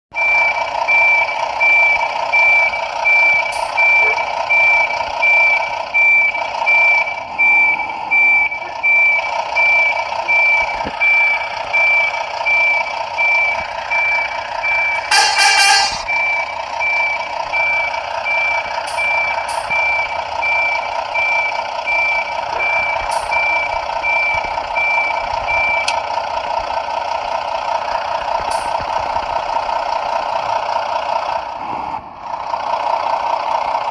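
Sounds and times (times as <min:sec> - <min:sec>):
reversing alarm beeping: 0:00.1 - 0:26.0
short loud burst: 0:15.0 - 0:16.0.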